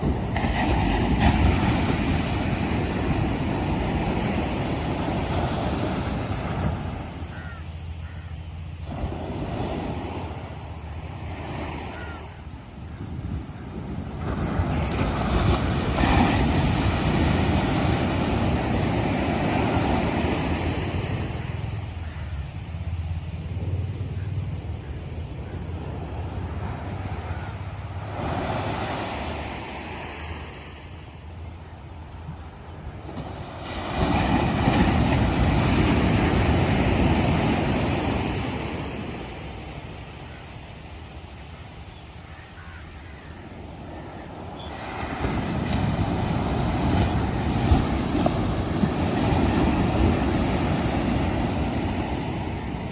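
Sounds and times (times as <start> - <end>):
wave breaking on beach: 0.0 - 7.6, 14.0 - 21.9, 32.9 - 40.5, 42.6 - 52.9
low surf rumble: 0.0 - 40.4.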